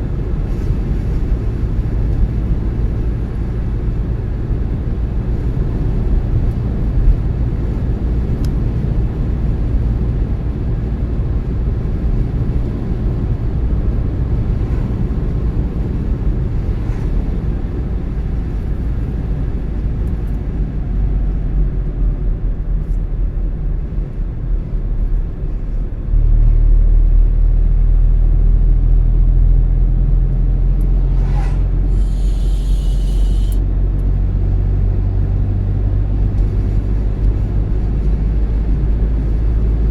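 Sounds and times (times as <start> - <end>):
car engine and tyre rumble: 0.0 - 39.9
short hiss: 31.3 - 33.6.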